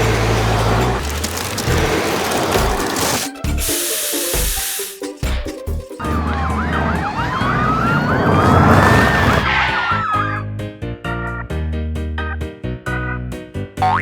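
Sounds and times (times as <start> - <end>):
siren yelp and wail: 6.0 - 10.4.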